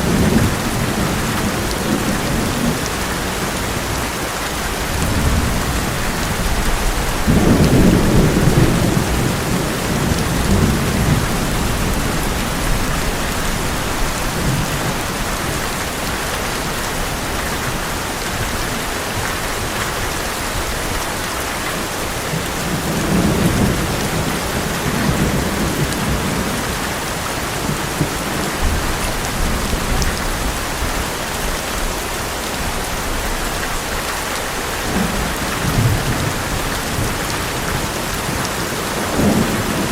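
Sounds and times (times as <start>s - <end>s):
thunder rumbling: 0.0s - 16.1s, 22.1s - 31.1s, 34.8s - 39.9s
rain drumming on metal roof: 0.0s - 39.9s.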